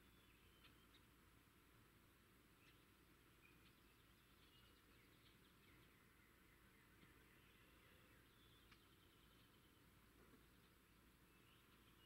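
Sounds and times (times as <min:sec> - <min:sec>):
whistled bird notes: 0:00.0 - 0:01.0
faint bird chirps: 0:00.0 - 0:01.6, 0:02.2 - 0:12.0
low hiss: 0:00.0 - 0:12.0.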